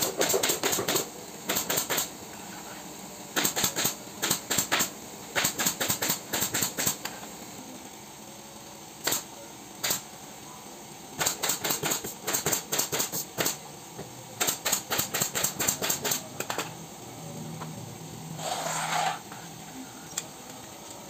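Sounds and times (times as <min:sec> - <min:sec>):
staple gun firing: 0:03.4 - 0:07.0, 0:11.2 - 0:13.6, 0:14.4 - 0:16.7.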